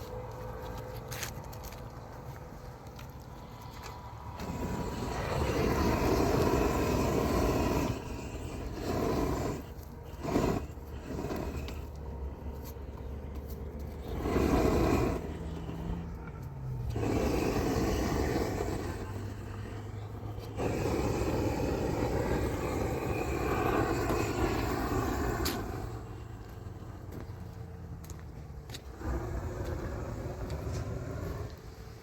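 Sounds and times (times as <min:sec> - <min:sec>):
motor vehicle engine hum: 0:00.0 - 0:32.0
rushing noise: 0:13.9 - 0:27.2.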